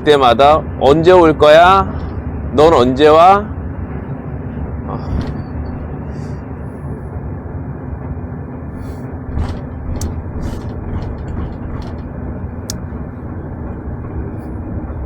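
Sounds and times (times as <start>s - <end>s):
bus engine and road noise: 0.0s - 15.0s
light rattles: 8.1s - 15.0s.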